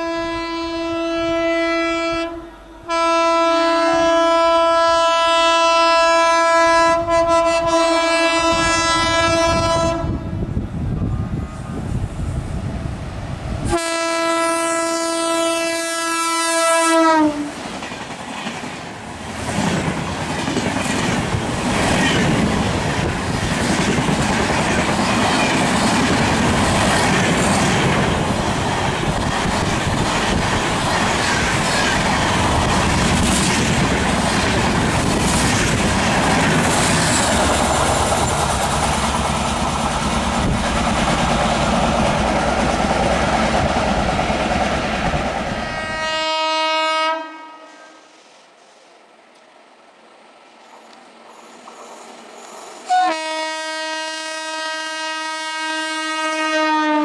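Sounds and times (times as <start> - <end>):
train horn blast: 0.0 - 10.5, 13.7 - 17.6, 45.6 - 48.3, 52.9 - 57.0
train wheels clicking over rails: 17.4 - 45.7, 50.6 - 53.0.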